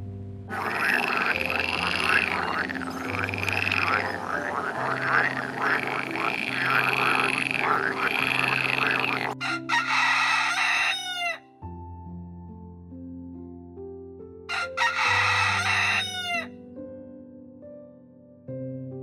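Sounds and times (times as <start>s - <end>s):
frog croaking: 0.5s - 11.4s, 14.6s - 16.5s.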